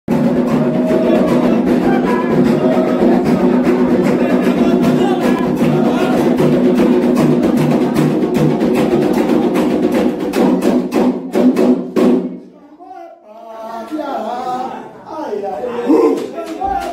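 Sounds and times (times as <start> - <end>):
hand drums playing fast rhythm: 0.1 - 12.3.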